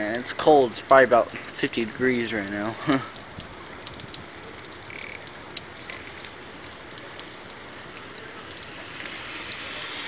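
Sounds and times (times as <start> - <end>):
rain falling: 0.0 - 10.0
raindrops ticking on surfaces: 0.0 - 10.0.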